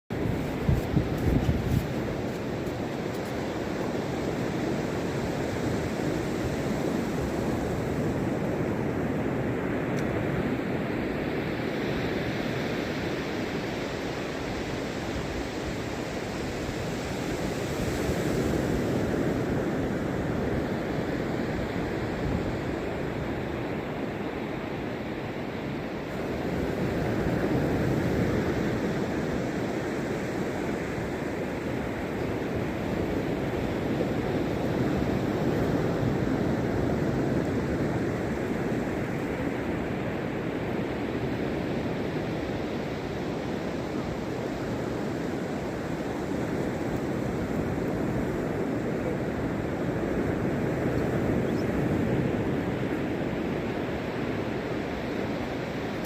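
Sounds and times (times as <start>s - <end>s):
wind buffeting microphone: 0.1s - 10.6s
sea surf washing on beach: 0.1s - 56.0s.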